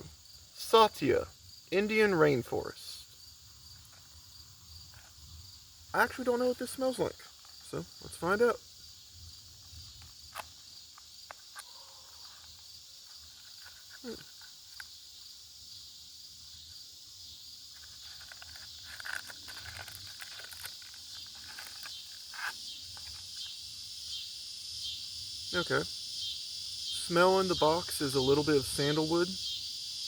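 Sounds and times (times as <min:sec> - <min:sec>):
crickets chirring: 0:00.0 - 0:30.0
handling clicks and rustles: 0:09.9 - 0:14.9, 0:17.7 - 0:23.6.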